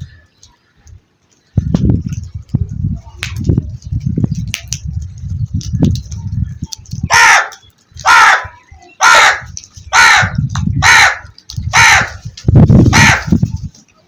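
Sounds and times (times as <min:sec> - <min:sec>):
crow cawing: 0:07.1 - 0:12.2.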